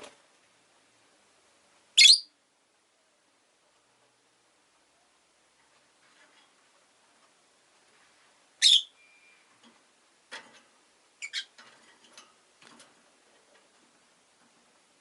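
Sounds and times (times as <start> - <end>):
lovebird chirping: 2.0 - 2.3, 8.6 - 9.5, 11.2 - 11.6.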